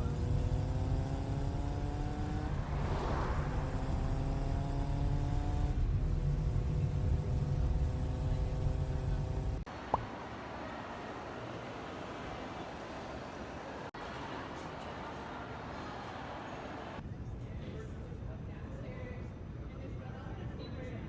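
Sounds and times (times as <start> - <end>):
vehicle engine shifting gears: 0.0 - 10.1.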